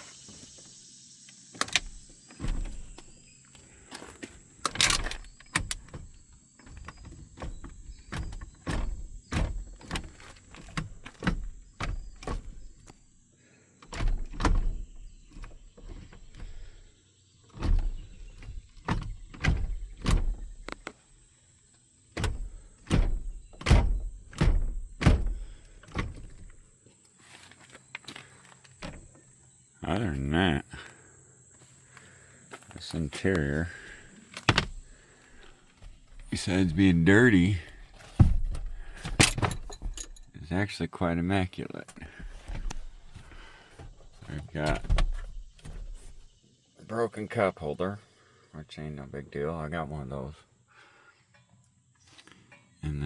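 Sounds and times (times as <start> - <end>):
knocks and thumps of vehicle parts: 1.5 - 13.1, 13.8 - 21.2, 22.1 - 26.8, 28.0 - 29.4, 32.0 - 40.4, 41.9 - 46.4.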